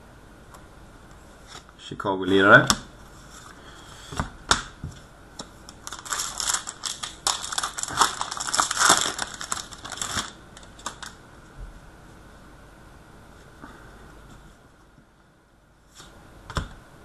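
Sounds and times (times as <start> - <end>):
wrapping crinkling and crumpling: 5.4 - 11.2.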